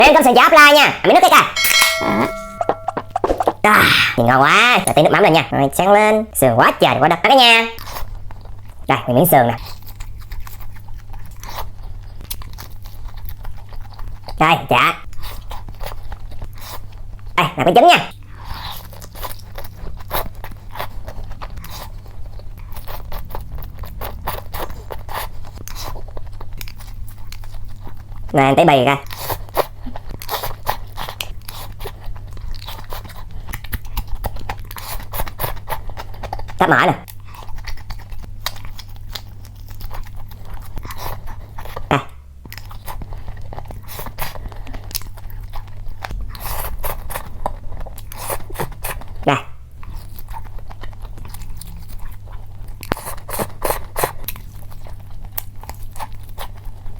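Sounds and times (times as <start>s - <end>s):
steady low hum: 1.6s - 5.2s
chewing food: 7.8s - 17.4s, 18.1s - 56.9s.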